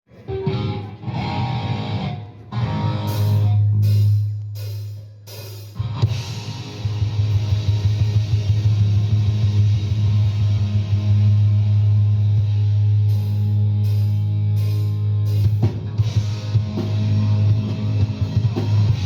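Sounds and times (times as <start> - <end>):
rock music with guitar and drums: 0.2 - 19.0.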